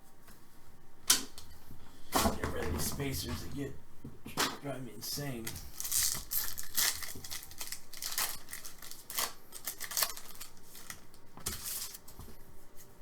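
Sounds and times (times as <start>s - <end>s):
foil wrapper crinkling: 5.4s - 12.2s.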